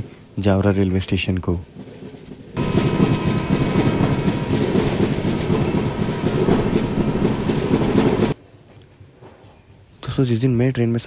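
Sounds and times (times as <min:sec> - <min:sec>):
train wheels rumbling on rails: 0:00.0 - 0:08.4
rushing air: 0:02.6 - 0:08.4.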